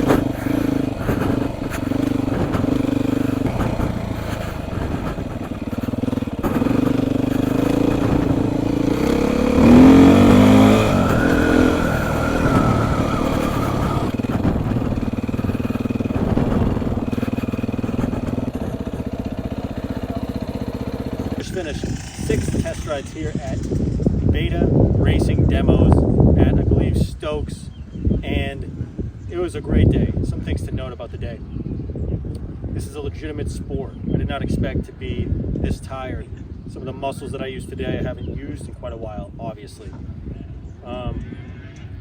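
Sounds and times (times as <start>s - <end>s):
dirt bike engine revving: 0.0s - 25.5s.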